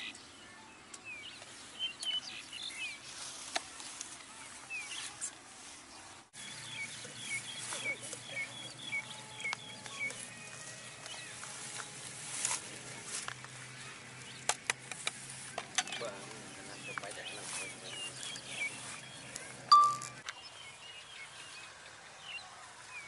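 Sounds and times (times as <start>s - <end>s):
small birds chirping: 0.0s - 23.0s
repeated bird calls: 6.4s - 12.0s, 13.4s - 21.1s.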